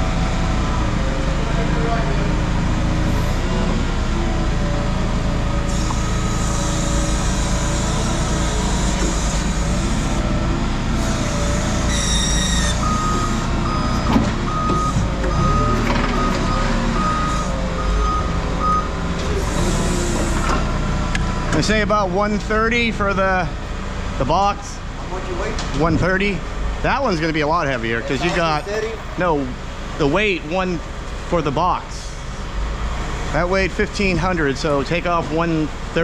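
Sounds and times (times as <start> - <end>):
high-pitched squeal: 5.6 - 10.3, 11.0 - 14.1, 14.7 - 20.6
reversing alarm beeps: 11.0 - 20.4.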